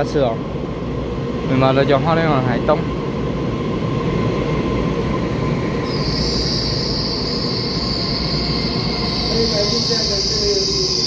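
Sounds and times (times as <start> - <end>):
electric train rumbling: 0.0 - 11.0
high-pitched brake squeal: 5.8 - 11.0.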